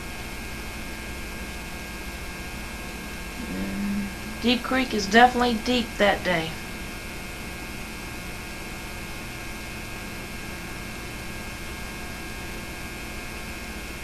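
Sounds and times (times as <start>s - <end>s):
electrical hum: 0.0s - 14.0s
tape hiss: 3.3s - 6.9s.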